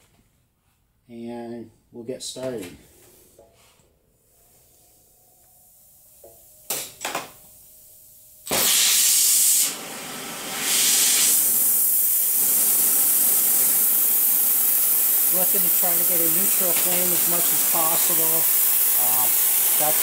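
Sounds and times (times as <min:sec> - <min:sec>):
gas torch hissing: 0:07.5 - 0:20.0
torch igniting pop: 0:08.4 - 0:09.7
loud flame hiss: 0:08.4 - 0:20.0.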